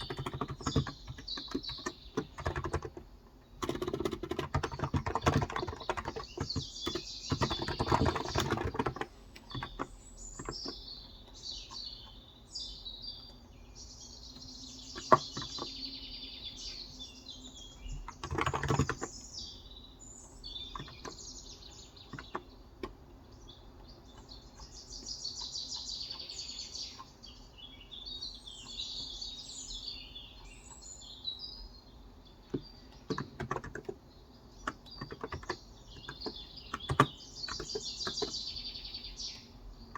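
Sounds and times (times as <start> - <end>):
keyboard typing: 0.0 - 10.8, 15.0 - 15.7, 17.9 - 19.2, 20.7 - 21.2, 22.1 - 23.0, 32.5 - 34.0, 34.6 - 38.4
small birds chirping: 0.0 - 39.9.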